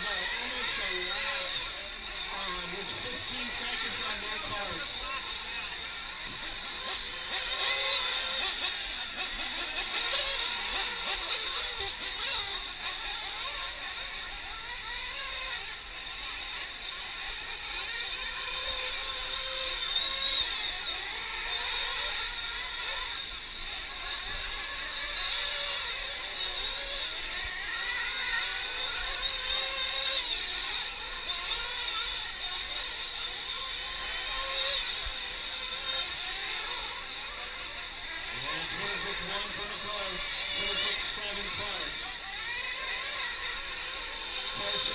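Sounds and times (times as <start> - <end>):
rc truck engines whining: 0.0 - 44.9.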